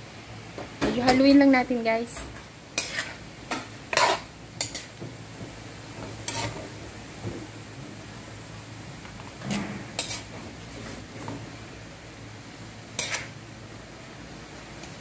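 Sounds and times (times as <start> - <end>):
faint sizzle: 0.0 - 15.0
metal spatula scraping a wok: 2.1 - 5.0, 6.0 - 6.8, 9.4 - 11.4, 12.9 - 13.4.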